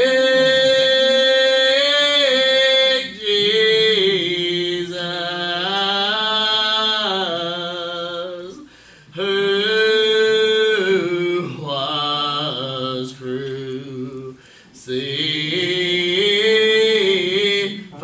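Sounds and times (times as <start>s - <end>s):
slow hymn singing: 0.0s - 18.0s.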